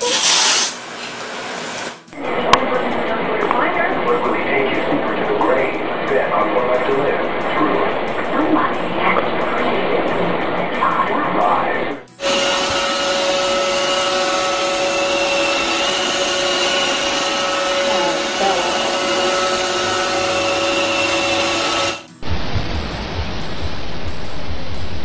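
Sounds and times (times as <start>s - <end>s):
vacuum cleaner running: 12.1s - 22.2s
rushing noise: 12.2s - 25.0s.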